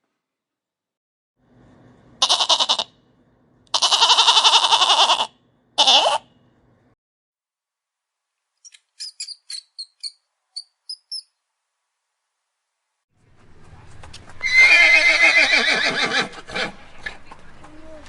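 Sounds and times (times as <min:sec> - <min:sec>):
horse whinnying: 0:03.8 - 0:06.2, 0:14.4 - 0:16.8
high-pitched squeaks: 0:08.6 - 0:11.3.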